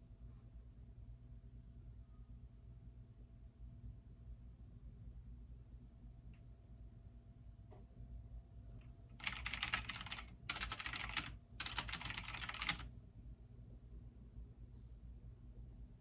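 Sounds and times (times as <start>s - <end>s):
typing on computer keyboard: 9.2s - 12.9s.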